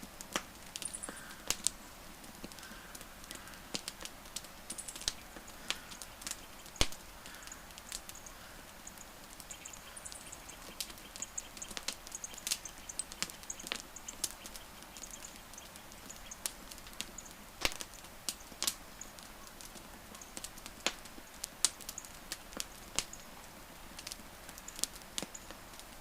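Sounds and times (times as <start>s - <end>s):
wood fire crackling: 0.0s - 26.0s
faint high chirps: 4.7s - 19.5s.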